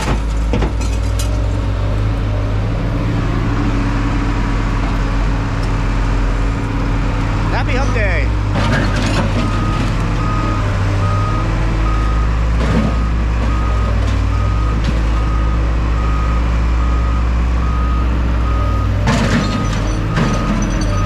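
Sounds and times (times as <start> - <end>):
clunk: 0.0 - 2.1, 19.0 - 21.0
heavy engine running: 0.0 - 21.0
back-up alarm beeping: 9.4 - 21.0.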